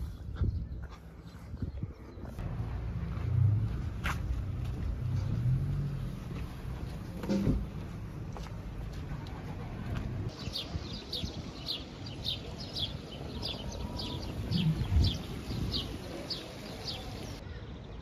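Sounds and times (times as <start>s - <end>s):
small birds chirping: 10.3s - 18.0s.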